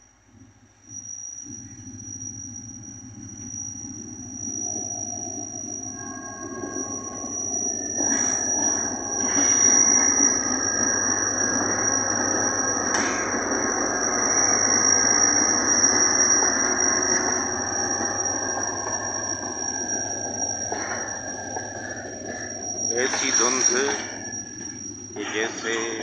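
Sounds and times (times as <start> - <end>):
high-pitched whine: 0.0 - 26.0
train engine and wheels rumbling: 1.5 - 26.0.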